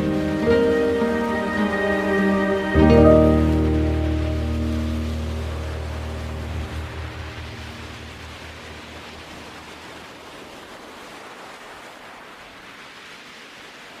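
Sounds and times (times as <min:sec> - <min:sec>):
background music: 0:00.0 - 0:08.1
steady rushing noise: 0:00.0 - 0:14.0.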